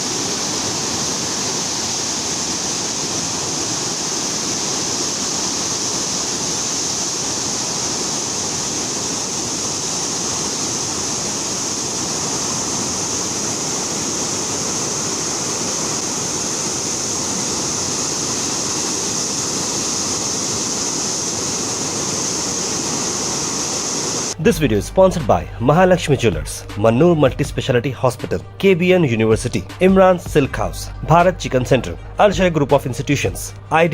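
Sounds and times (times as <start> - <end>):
floodwater rushing: 0.0 - 24.6.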